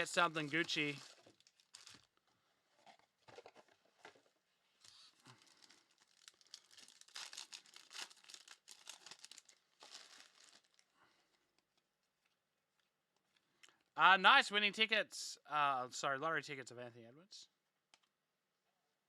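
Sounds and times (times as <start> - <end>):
plastic wrapping tearing: 0.1 - 2.2, 4.8 - 10.9.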